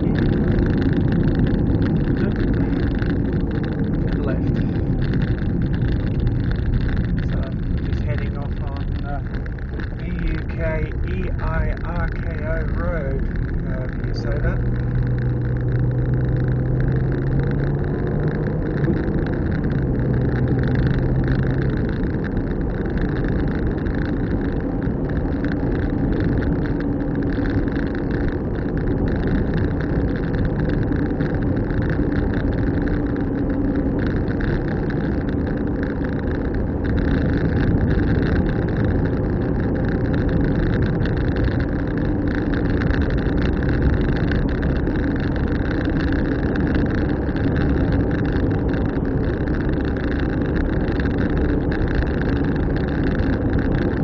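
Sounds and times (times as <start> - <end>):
low engine hum: 0.0 - 54.0
road and tyre noise: 0.0 - 54.0.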